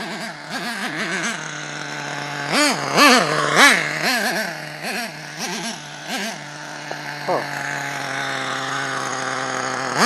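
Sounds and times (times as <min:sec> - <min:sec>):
model engine idling and revving: 0:00.0 - 0:10.0.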